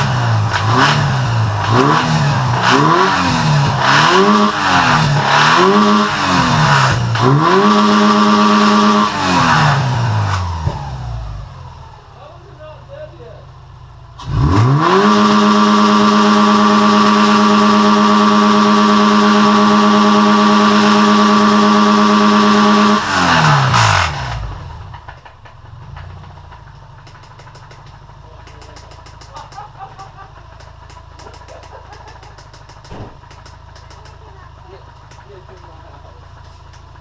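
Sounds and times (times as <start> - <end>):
car engine revving then idling: 0.0 - 13.1, 13.7 - 37.0
engine ticking: 21.0 - 37.0.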